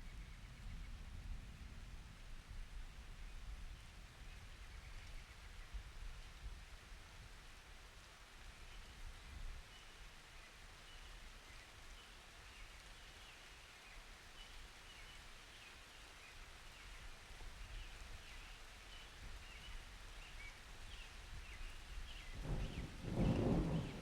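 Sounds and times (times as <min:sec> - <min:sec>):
faint light rain: 0:00.0 - 0:24.0
thunder rumbling: 0:22.4 - 0:24.0.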